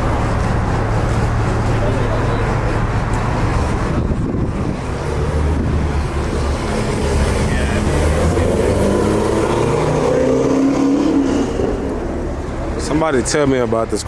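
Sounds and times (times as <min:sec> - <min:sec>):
car engine running: 0:00.0 - 0:13.9
people talking: 0:01.3 - 0:04.1, 0:07.0 - 0:10.2, 0:12.7 - 0:14.0.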